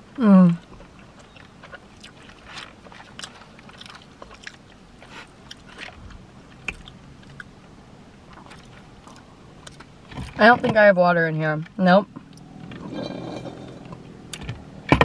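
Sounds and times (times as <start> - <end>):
chewing food: 0.6 - 7.5, 8.3 - 9.9.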